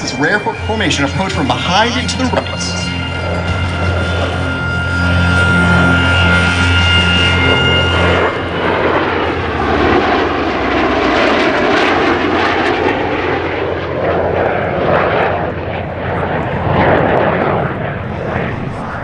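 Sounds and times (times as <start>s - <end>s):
background music: 0.0s - 11.8s
airplane engines roaring: 0.0s - 19.0s.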